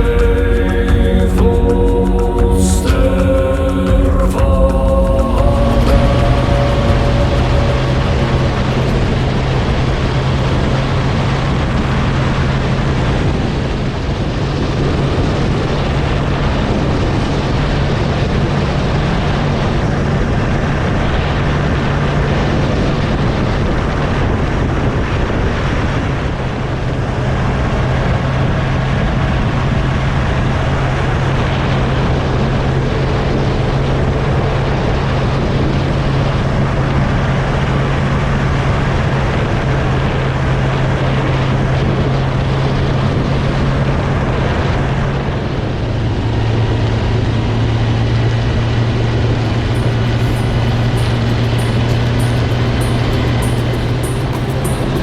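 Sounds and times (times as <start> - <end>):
wind on microphone: 0.0 - 55.0
motorcycle engine running: 46.7 - 55.0.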